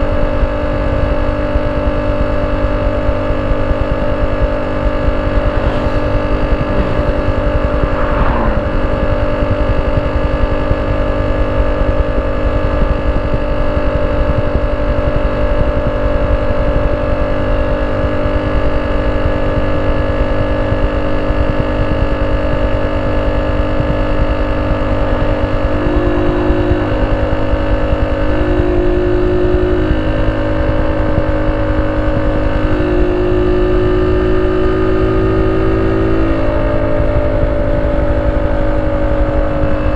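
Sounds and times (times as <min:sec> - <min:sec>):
motorcycle engine idling: 0:23.8 - 0:39.9.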